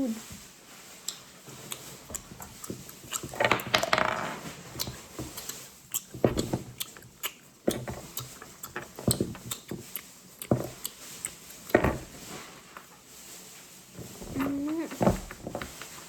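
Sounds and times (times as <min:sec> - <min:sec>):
plastic toys clicking and knocking: 0:01.8 - 0:12.1.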